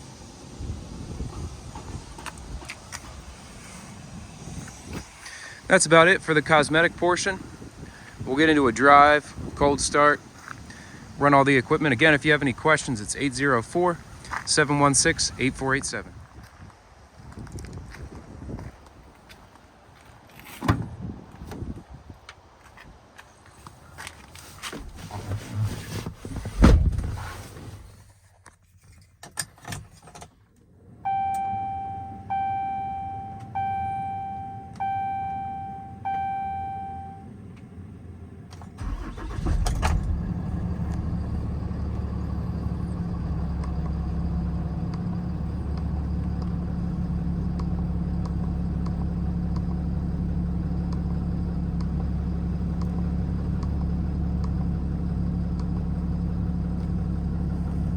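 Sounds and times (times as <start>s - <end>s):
diesel engine cranking and starting: 0.1s - 16.0s, 37.3s - 57.9s
diesel engine idling: 0.1s - 16.0s, 37.7s - 57.9s
dashboard warning chimes: 31.1s - 37.3s.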